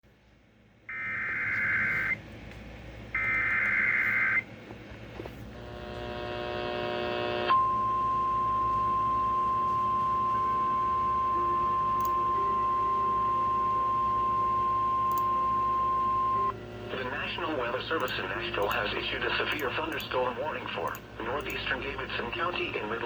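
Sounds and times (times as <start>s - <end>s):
buzzy many-pitched tone: 0.9s - 2.2s, 5.6s - 17.7s
screeching digital header bursts: 0.9s - 2.2s, 3.2s - 4.4s.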